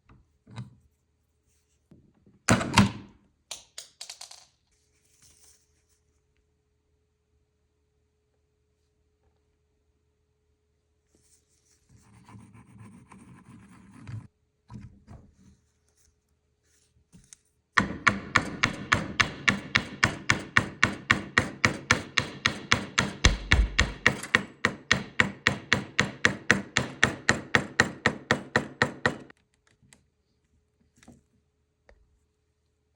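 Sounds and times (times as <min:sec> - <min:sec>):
sharp knocks on wood: 0:17.8 - 0:29.3.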